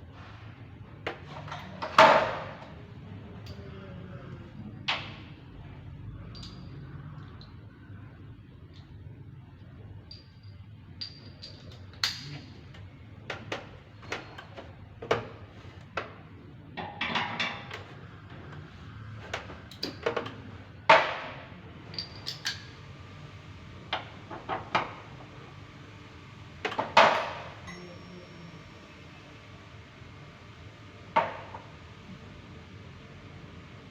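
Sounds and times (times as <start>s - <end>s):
hard objects knocking and clinking: 10.1s - 12.4s.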